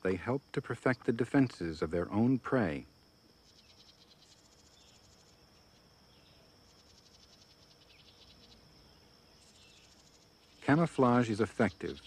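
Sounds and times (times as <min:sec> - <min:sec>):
cricket chirping trills: 0:00.0 - 0:12.0.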